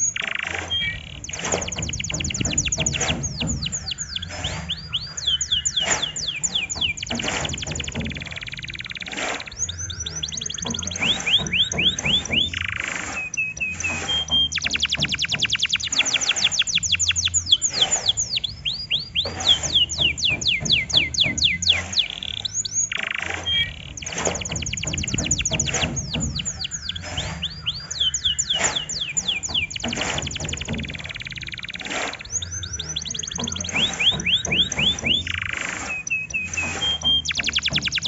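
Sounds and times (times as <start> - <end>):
canary singing trills: 0.0 - 38.0.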